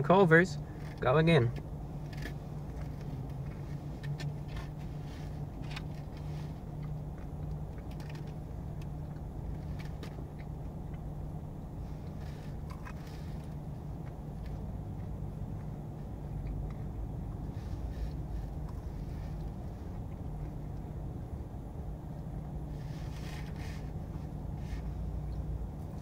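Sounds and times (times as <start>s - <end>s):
car low hum: 0.0s - 26.0s
person chewing crunchy food: 1.6s - 17.5s.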